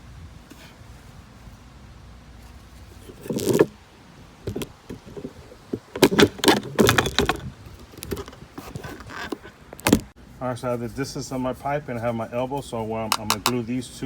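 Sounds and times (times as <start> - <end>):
plastic pipes knocking and rattling: 4.4 - 10.1, 13.1 - 13.6.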